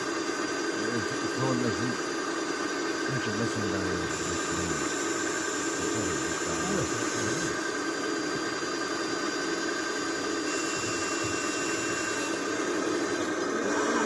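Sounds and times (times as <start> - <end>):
thin high whine: 0.0 - 14.0
diesel engine running: 0.8 - 2.0, 3.1 - 4.9.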